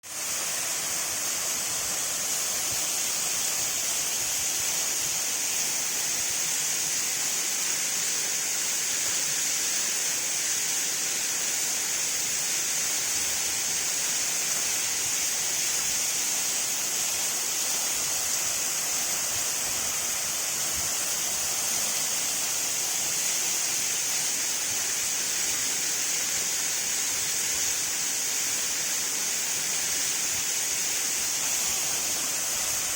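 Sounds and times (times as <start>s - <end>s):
waterfall cascading: 0.0s - 32.9s.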